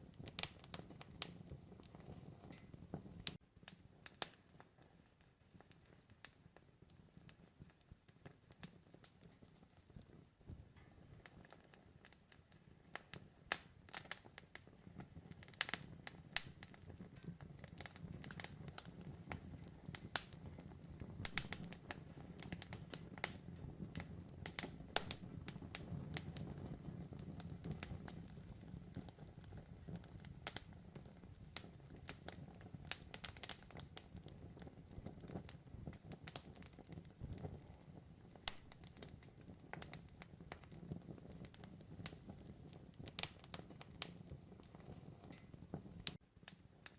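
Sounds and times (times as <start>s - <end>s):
wood crackling and popping: 0.0s - 46.9s
flames rushing: 13.1s - 46.2s.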